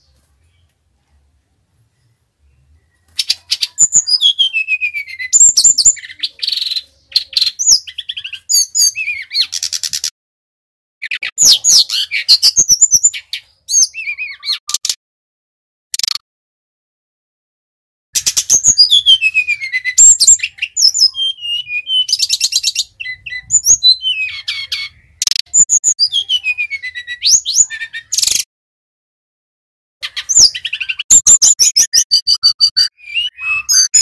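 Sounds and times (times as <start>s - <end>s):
bird singing chirps and trills: 1.8s - 10.1s, 11.0s - 14.9s, 18.2s - 28.5s, 30.0s - 34.0s.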